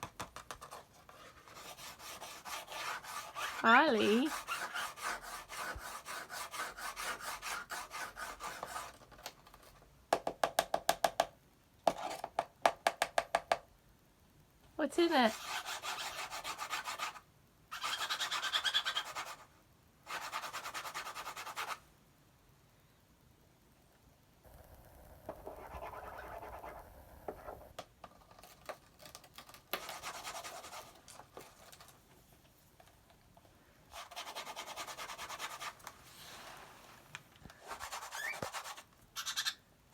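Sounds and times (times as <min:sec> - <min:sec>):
bird scratching cardboard: 0:00.2 - 0:09.8, 0:15.3 - 0:19.4, 0:20.1 - 0:21.8, 0:25.3 - 0:27.6, 0:28.2 - 0:31.9, 0:33.9 - 0:36.7, 0:37.6 - 0:39.6
bird scraping cardboard box: 0:00.7 - 0:09.0.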